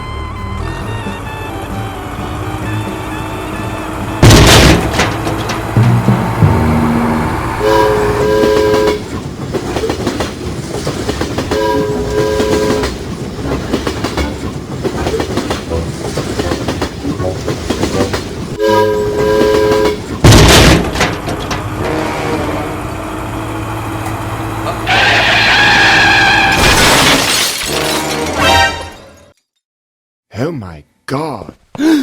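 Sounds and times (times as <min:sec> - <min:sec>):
train clattering on track: 0:02.7 - 0:25.0
loud noisy burst: 0:04.2 - 0:08.6
train horn double blast: 0:05.6 - 0:09.1, 0:11.5 - 0:13.0, 0:18.6 - 0:20.1, 0:21.7 - 0:23.1.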